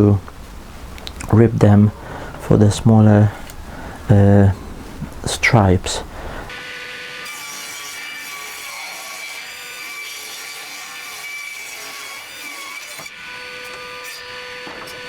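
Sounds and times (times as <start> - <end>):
table saw ripping wood: 6.5 - 15.0.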